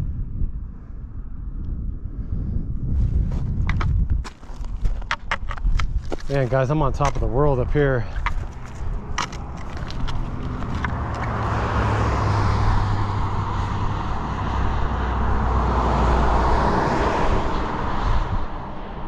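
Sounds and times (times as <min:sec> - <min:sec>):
vehicle driving past: 0:08.5 - 0:19.0.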